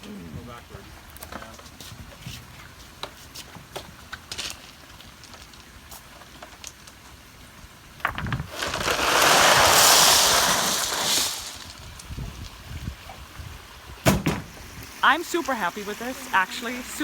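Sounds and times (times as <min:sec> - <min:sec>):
faint steady background noise: 0:00.0 - 0:17.0
rushing hissing noise: 0:08.5 - 0:11.8.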